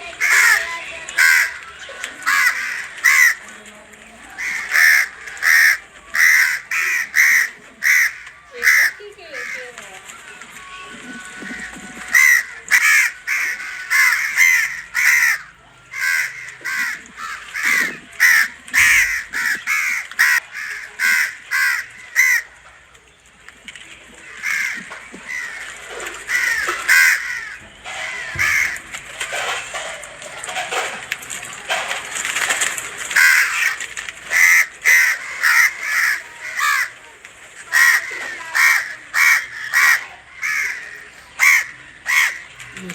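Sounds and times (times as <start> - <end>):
birds calling: 0.0 - 42.9.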